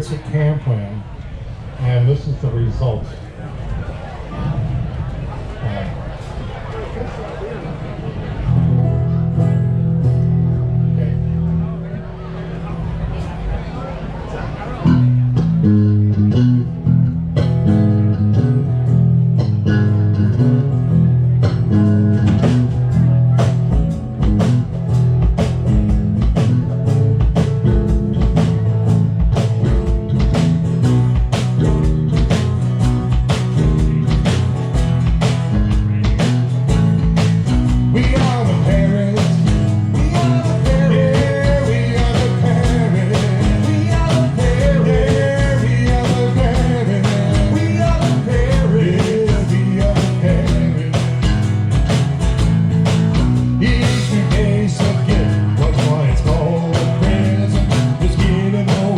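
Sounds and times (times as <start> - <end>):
live band playing upbeat song: 14.8 - 58.9
steady drum beat: 16.9 - 58.9.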